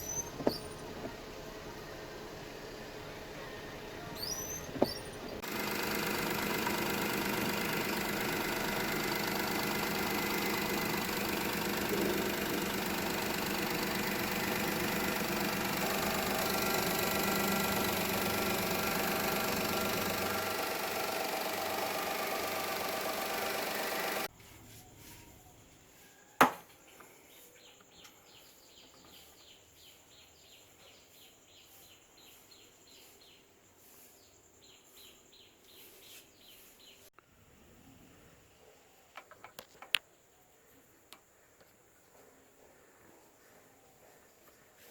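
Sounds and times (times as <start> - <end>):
car engine running: 0.0 - 24.3.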